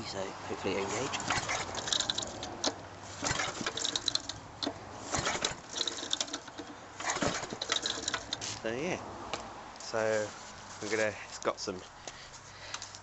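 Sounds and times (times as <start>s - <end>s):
recoil starter cranking engine: 1.1s - 8.5s.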